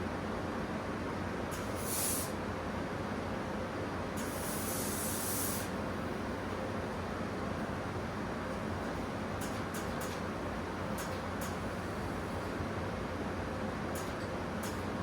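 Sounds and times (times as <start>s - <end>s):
spray gun hissing: 1.8s - 2.3s, 4.3s - 5.7s.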